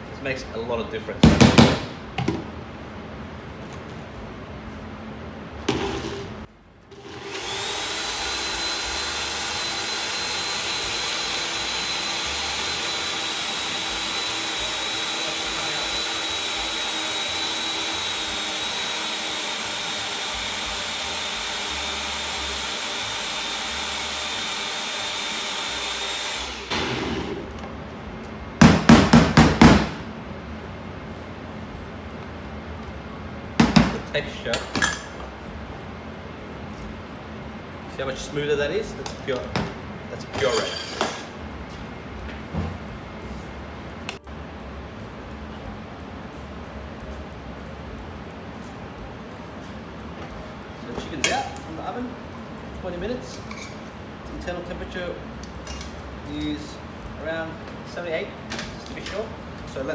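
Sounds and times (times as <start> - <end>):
loud knocks: 1.2 - 2.4, 28.6 - 30.1, 33.6 - 34.1
blender motor whining: 6.9 - 27.5.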